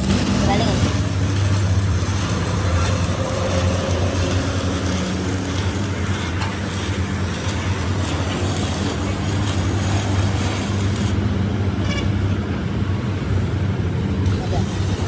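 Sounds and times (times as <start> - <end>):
engine humming: 0.0 - 15.0
hiss: 14.3 - 15.0.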